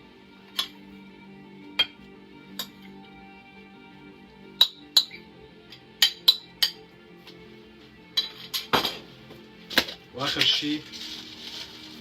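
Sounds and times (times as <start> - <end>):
background music: 0.0 - 12.0
metal utensil clinking on dish: 8.2 - 9.0.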